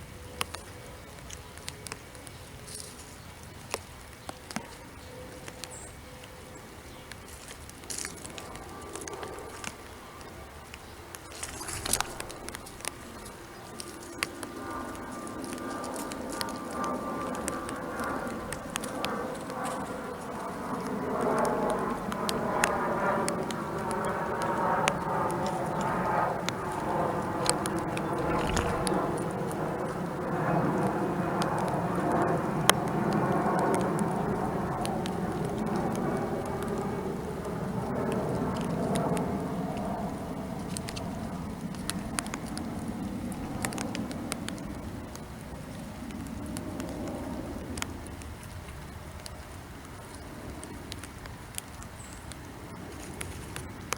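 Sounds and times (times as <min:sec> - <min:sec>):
sharp ticks and taps: 0:00.4 - 0:53.9
background rumble: 0:26.6 - 0:30.2.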